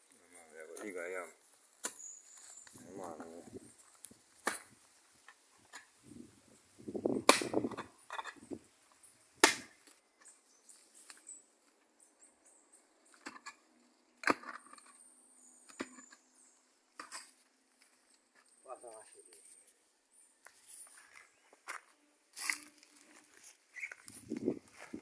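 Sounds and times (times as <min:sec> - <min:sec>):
hand tool chopping: 0:07.3 - 0:07.8, 0:09.4 - 0:09.8.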